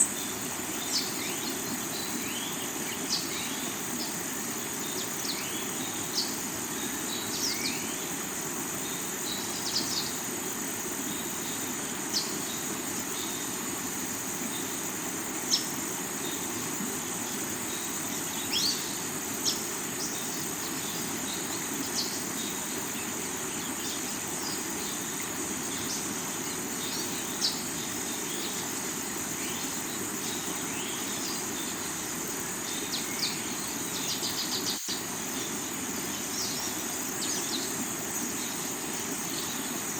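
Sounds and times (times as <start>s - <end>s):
high insect drone: 0.0s - 39.9s
river water flowing over rocks: 0.0s - 39.9s.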